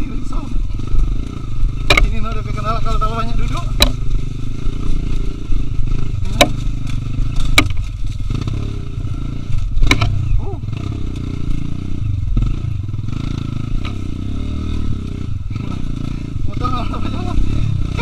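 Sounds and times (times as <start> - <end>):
motorcycle engine running: 0.0 - 18.0
sharp knocks and rattles: 1.2 - 2.2, 3.6 - 5.2, 5.8 - 8.6, 9.6 - 10.2.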